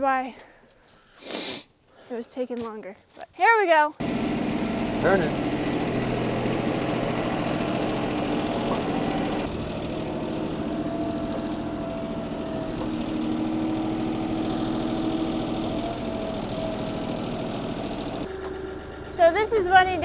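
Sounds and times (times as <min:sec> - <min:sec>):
tractor engine running: 0:04.0 - 0:20.0.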